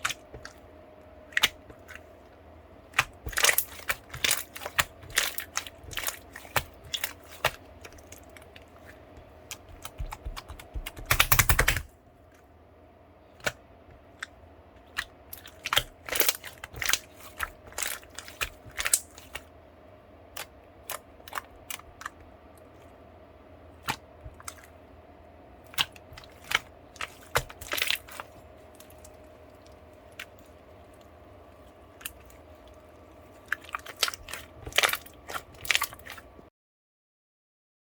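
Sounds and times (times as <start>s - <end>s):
faint steady hum: 0.0s - 36.5s
slime squished by hand: 2.9s - 11.9s, 13.4s - 19.5s, 23.8s - 24.8s, 25.6s - 36.5s.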